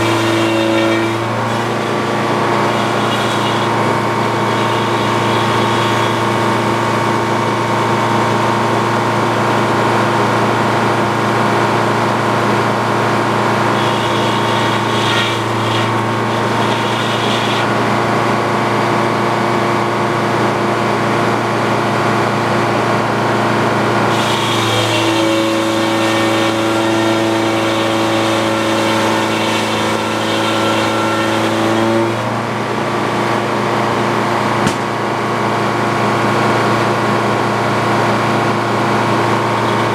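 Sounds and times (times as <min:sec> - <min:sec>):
saw blade hum and hiss: 0:00.0 - 0:07.2, 0:13.4 - 0:18.0, 0:24.1 - 0:32.3
sawmill power unit droning: 0:00.0 - 0:39.9.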